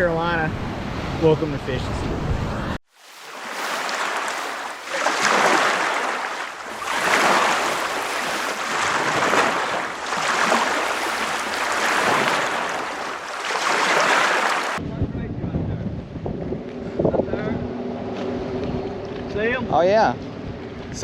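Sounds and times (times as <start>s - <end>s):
ocean surf washing in: 0.5s - 14.8s.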